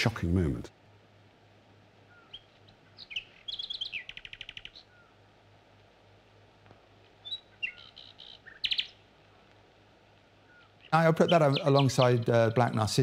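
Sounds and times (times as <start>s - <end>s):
steady low hum: 0.0s - 13.0s
songbird chirping and trilling: 2.0s - 5.4s, 7.2s - 9.2s, 10.3s - 13.0s.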